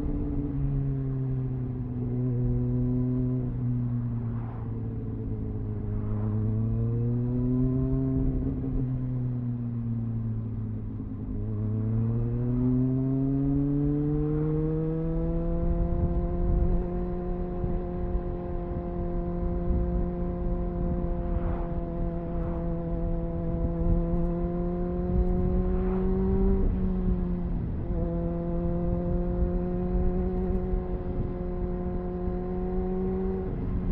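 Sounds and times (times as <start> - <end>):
motorcycle engine revving: 11.0 - 33.9.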